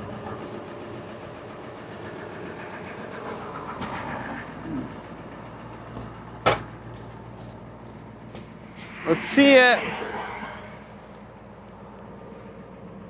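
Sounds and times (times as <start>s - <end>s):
truck engine idling: 0.0s - 9.1s.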